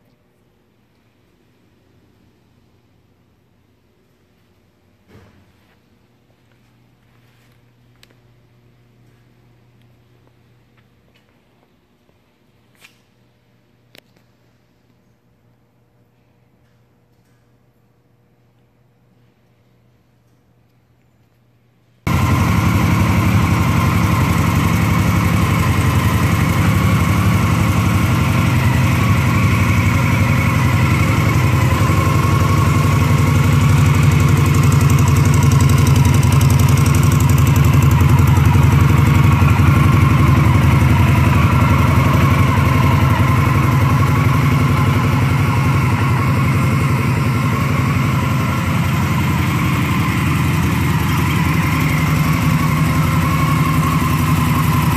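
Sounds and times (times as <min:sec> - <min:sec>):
motorcycle engine idling: 0:22.1 - 0:54.9.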